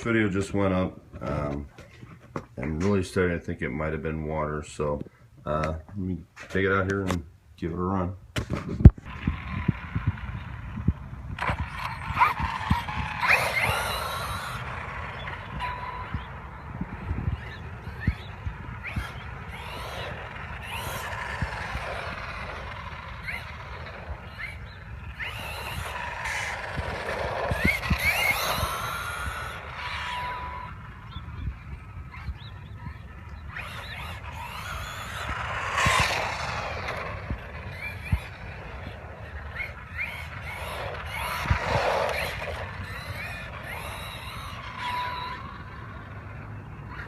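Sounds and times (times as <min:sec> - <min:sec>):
sharp thumps: 0:08.3 - 0:45.4
electric motor whining: 0:08.8 - 0:47.0.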